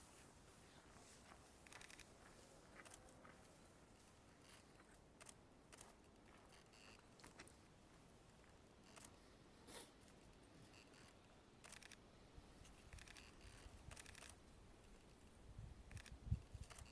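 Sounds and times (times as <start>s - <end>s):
camera shutter clicks: 11.6s - 12.0s, 13.0s - 14.4s, 15.9s - 16.9s.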